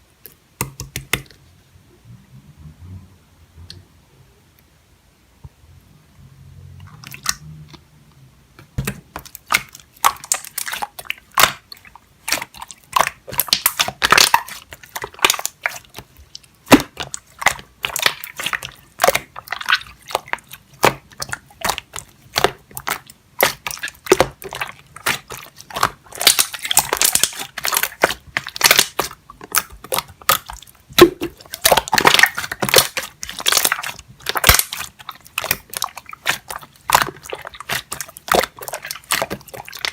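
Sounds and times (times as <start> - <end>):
slime crackling and popping: 8.8 - 39.9.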